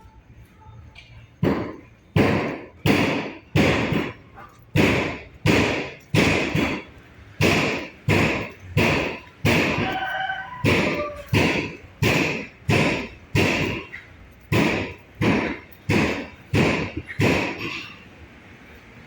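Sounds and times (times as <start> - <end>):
rhythmic loud knocks: 1.4 - 18.0.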